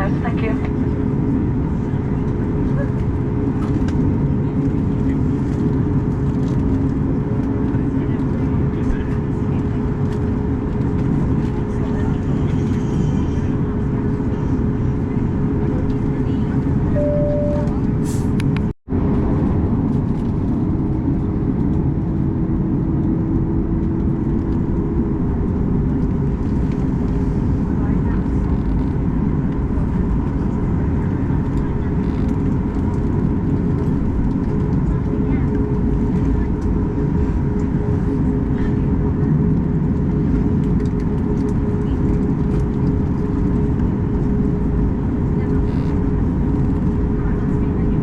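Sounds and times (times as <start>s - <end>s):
mid-pitched hum: 0.0s - 18.7s
aircraft cabin rumble: 0.0s - 48.0s
faint tone: 16.9s - 17.9s.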